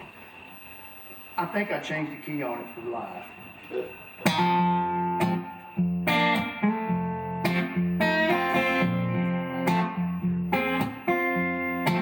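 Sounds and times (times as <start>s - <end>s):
guitar chords ringing: 2.4s - 12.0s.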